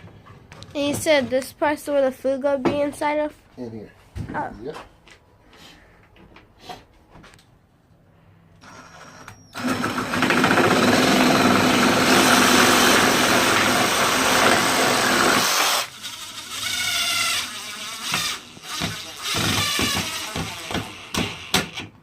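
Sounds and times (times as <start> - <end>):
power drill driving screw into wood: 8.6 - 21.9.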